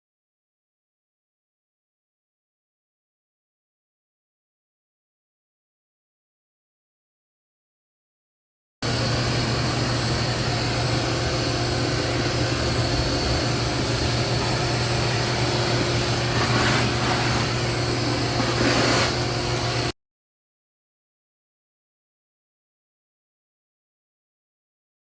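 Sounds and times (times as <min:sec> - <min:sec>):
machine motor humming: 0:08.8 - 0:19.9.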